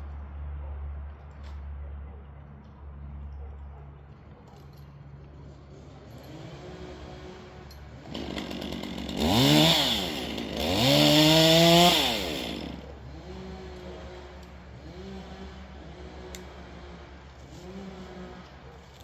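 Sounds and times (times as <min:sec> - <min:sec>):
chainsaw idling and revving: 0:06.1 - 0:19.0.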